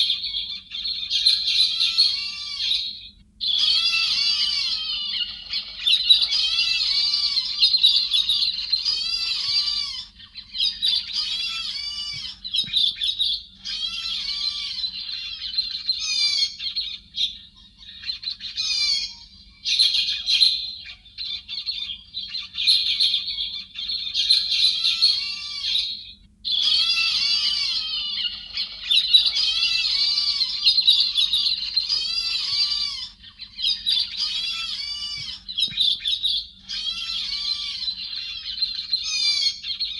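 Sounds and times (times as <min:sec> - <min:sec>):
birds chattering: 0:00.0 - 0:39.9.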